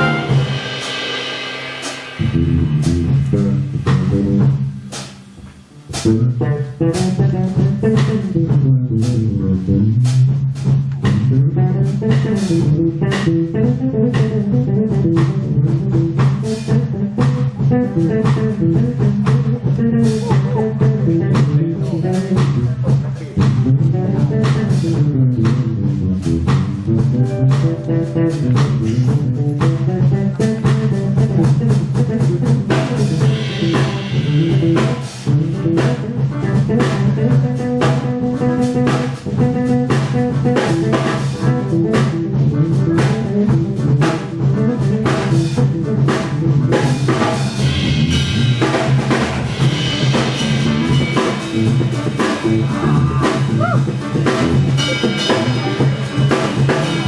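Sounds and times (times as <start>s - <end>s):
jazz orchestra playing: 0.0s - 5.1s, 23.4s - 57.0s
drum kit: 0.0s - 57.0s
guitar: 0.0s - 57.0s.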